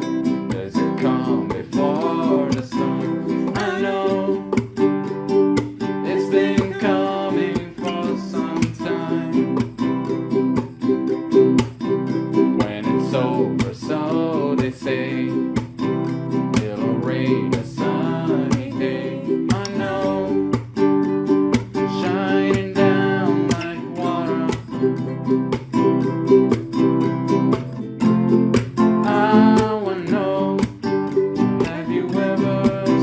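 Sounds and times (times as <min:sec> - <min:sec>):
person singing: 0:00.0 - 0:10.5, 0:12.4 - 0:20.6, 0:21.8 - 0:26.1, 0:29.0 - 0:33.0
strummed acoustic guitars: 0:00.0 - 0:33.0.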